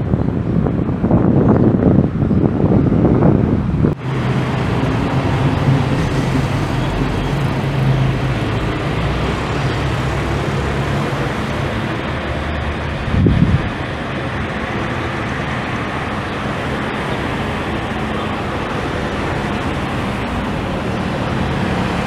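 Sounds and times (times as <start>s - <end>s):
airliner jet engine noise: 0.0s - 22.0s
wind buffeting microphone: 0.0s - 22.0s.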